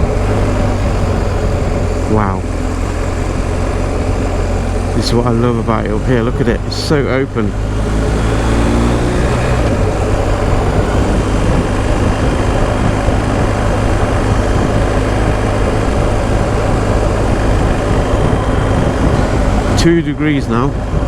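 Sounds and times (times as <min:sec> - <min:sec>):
motorcycle engine running: 0:00.0 - 0:21.0
wind noise on microphone: 0:00.0 - 0:21.0.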